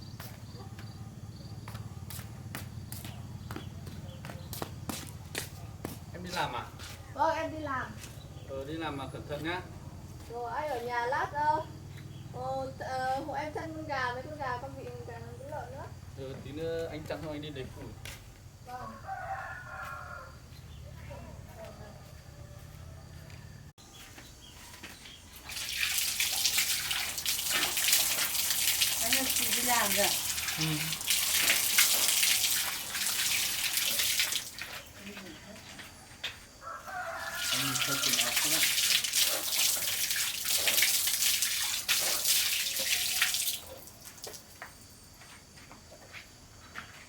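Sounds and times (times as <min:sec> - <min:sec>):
water running loudly: 0:25.4 - 0:35.2, 0:37.1 - 0:44.4.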